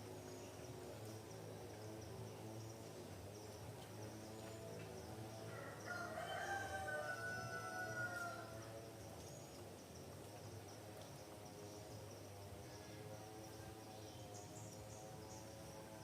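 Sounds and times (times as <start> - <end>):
rooster crowing: 5.5 - 8.6.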